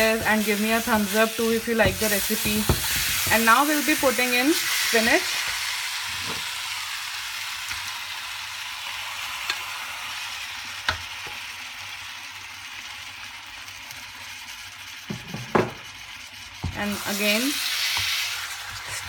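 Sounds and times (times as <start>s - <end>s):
food sizzling in a wok: 0.0s - 19.0s.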